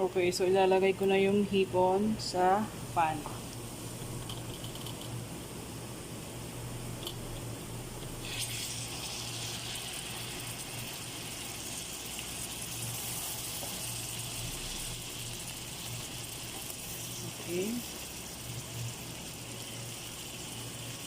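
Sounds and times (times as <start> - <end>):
butter sizzling in a frying pan: 8.2 - 21.0.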